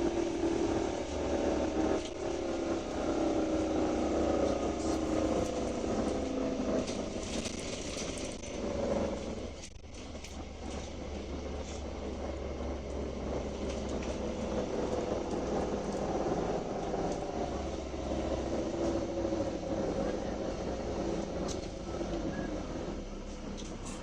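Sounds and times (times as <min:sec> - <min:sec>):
bus engine running: 0:00.0 - 0:24.0
drifting whine: 0:00.0 - 0:24.0
road noise: 0:00.0 - 0:24.0.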